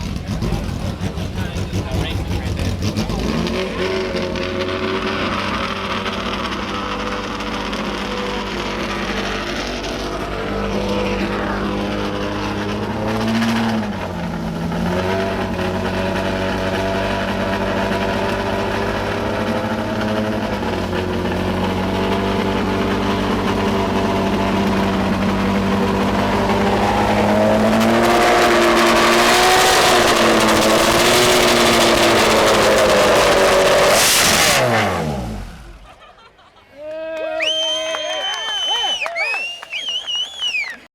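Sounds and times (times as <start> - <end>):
engine spinning down: 0.0 - 36.0
race car engine idling and revving: 0.0 - 36.2.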